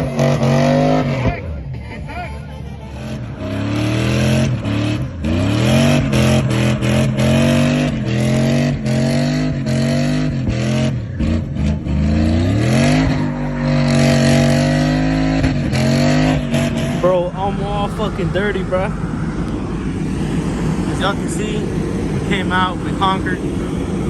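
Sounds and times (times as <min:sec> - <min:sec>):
truck engine revving: 0:00.0 - 0:24.0
loud rushing noise: 0:11.6 - 0:24.0.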